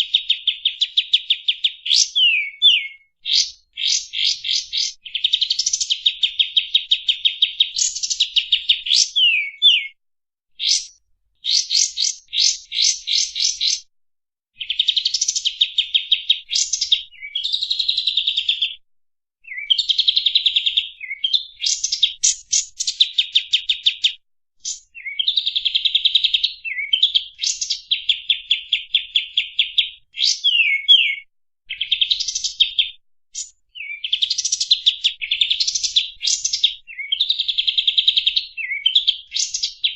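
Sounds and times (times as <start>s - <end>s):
bird singing rapid trills: 10.6s - 13.9s, 24.6s - 32.8s.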